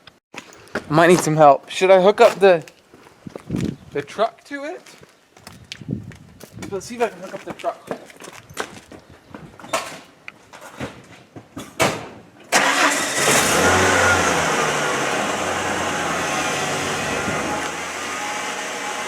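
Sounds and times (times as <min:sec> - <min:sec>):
truck engine starting and idling: 0:12.5 - 0:19.0.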